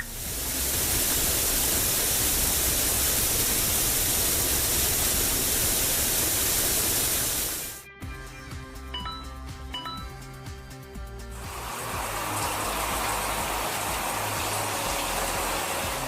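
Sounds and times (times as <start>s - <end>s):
steady hissing noise: 0.0s - 7.8s.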